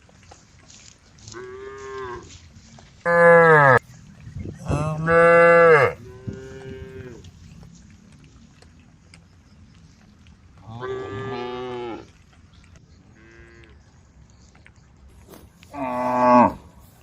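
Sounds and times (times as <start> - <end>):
cows mooing: 3.0 - 3.8, 4.6 - 7.6, 10.6 - 12.2, 13.1 - 13.8, 15.7 - 16.7.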